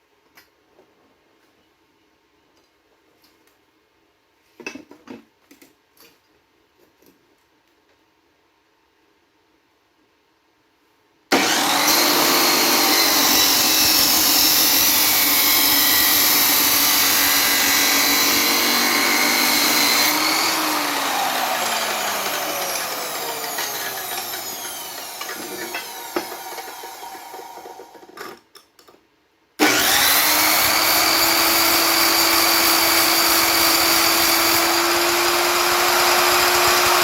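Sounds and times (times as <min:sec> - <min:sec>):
angle grinder grinding metal: 0:11.3 - 0:28.2, 0:29.6 - 0:37.0
grinder winding down whine: 0:11.3 - 0:28.2, 0:29.6 - 0:37.0.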